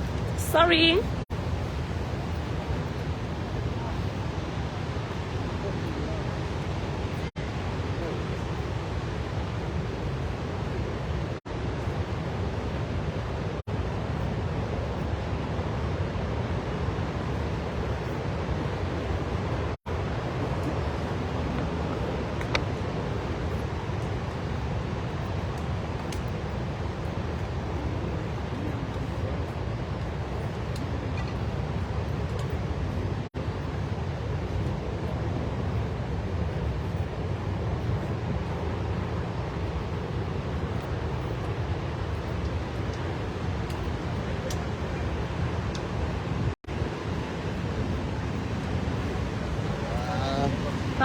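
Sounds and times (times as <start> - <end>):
waterfall roaring: 0.0 - 51.0
waterfall rushing: 44.0 - 51.0.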